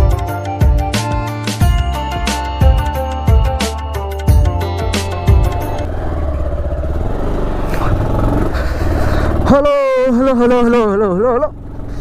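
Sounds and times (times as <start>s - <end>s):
music with heavy beat: 0.0s - 5.8s
motorcycle engine running: 4.3s - 12.0s.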